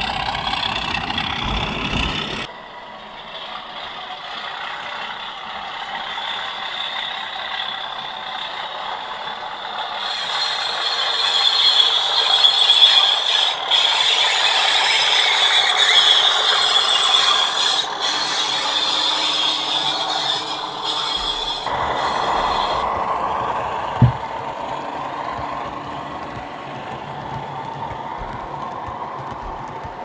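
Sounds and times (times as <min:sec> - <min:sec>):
diesel locomotive engine sound: 0:00.0 - 0:30.0
model train clattering on track: 0:00.0 - 0:30.0.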